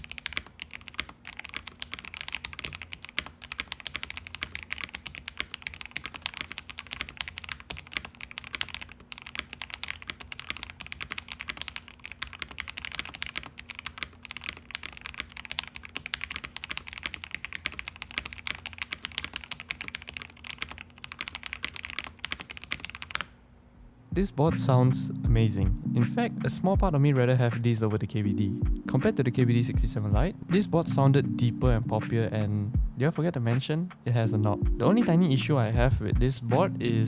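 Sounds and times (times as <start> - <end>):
mechanical keyboard typing: 0.0 - 23.3.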